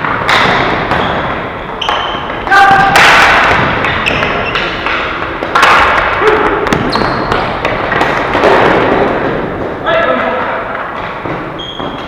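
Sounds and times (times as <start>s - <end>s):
din of players and spectators: 0.0s - 12.0s
hockey sticks clacking: 0.0s - 12.0s.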